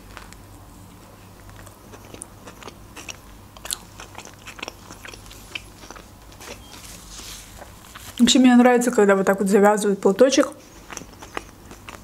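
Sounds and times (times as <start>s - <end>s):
chewing with crunchy clicks: 1.4s - 6.8s, 10.5s - 12.0s.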